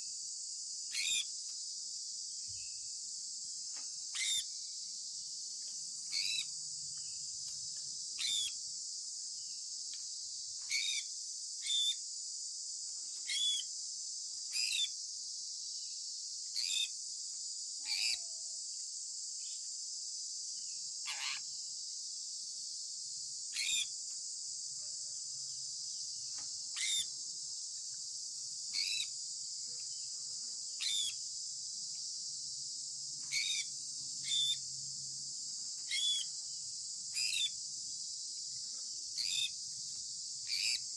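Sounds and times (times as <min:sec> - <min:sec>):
steady high-pitched hiss: 0:00.0 - 0:40.9
parrot chirping: 0:26.8 - 0:27.0, 0:33.3 - 0:34.6.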